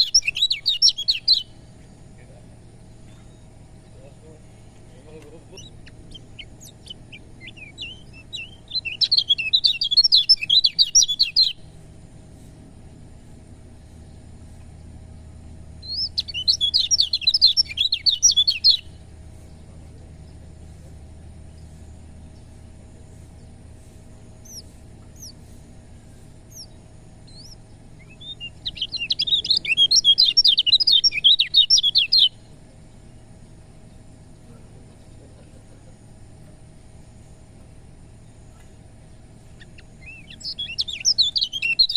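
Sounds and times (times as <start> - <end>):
bird high rapid chirping: 0.0 - 2.0, 2.6 - 11.8, 15.8 - 20.4, 23.2 - 32.5, 38.3 - 41.9
low steady hum: 0.0 - 41.9.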